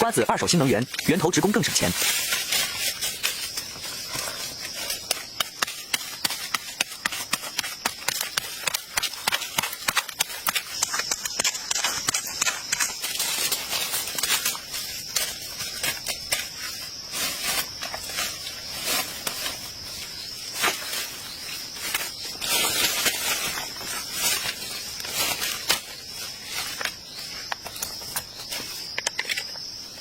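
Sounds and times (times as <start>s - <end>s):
high insect drone: 0.0s - 30.0s
sharp clicks and crackles: 4.8s - 16.4s.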